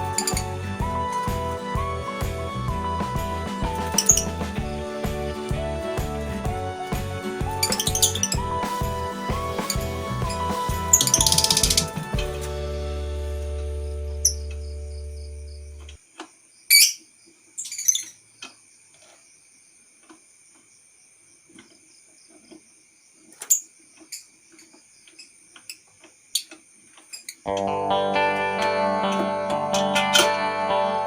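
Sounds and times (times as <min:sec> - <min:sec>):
guitar background music: 0:00.0 - 0:15.9, 0:27.5 - 0:31.0
lovebirds chirping: 0:03.2 - 0:04.6, 0:07.4 - 0:12.2.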